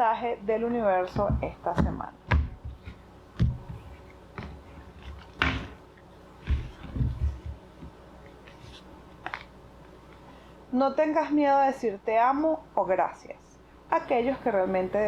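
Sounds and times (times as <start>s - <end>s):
soft thumps and knocks on table: 1.2s - 5.8s, 6.4s - 8.0s
card rustle: 8.3s - 9.5s.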